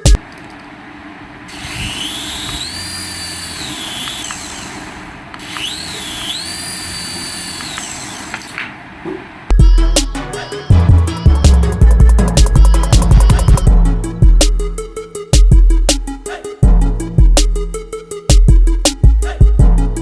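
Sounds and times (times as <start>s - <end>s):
small electric motor whining: 1.5s - 8.6s.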